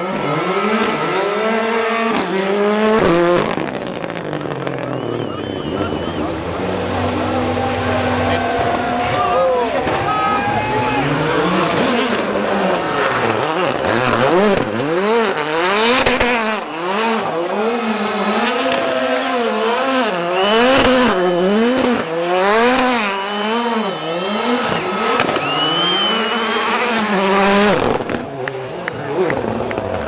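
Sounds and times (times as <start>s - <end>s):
rally car engine revving: 0.0s - 30.0s
tyres squealing on tarmac: 0.2s - 3.8s, 4.6s - 16.0s, 23.8s - 28.1s.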